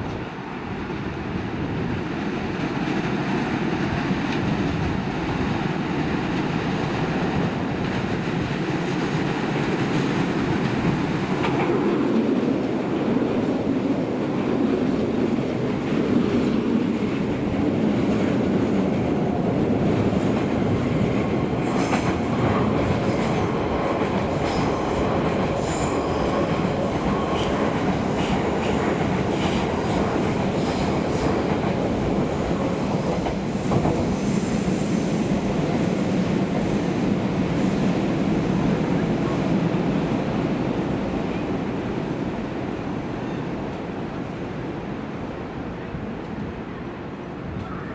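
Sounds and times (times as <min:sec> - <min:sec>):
train wheels rumbling on rails: 0:00.0 - 0:44.2
rail-joint clicks: 0:21.5 - 0:31.8.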